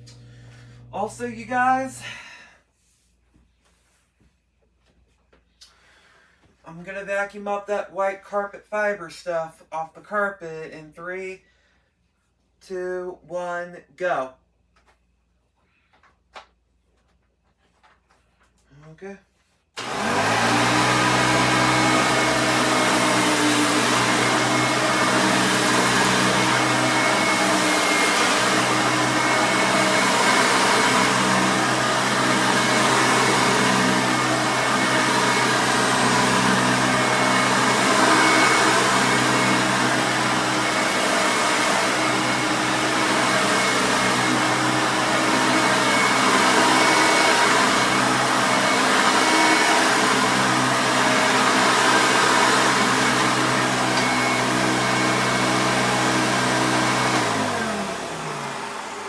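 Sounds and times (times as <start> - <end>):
upright vacuum cleaner running: 0.0 - 2.2, 19.8 - 59.0.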